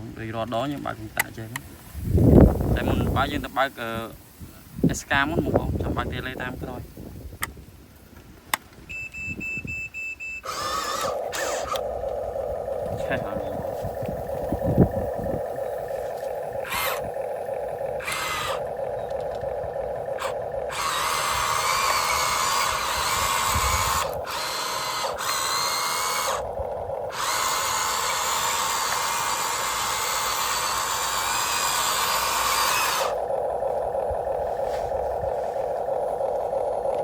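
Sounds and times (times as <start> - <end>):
grinding motor running: 10.4 - 37.0
steady motor hum: 10.4 - 37.0
toy excavator motors whining: 10.4 - 37.0.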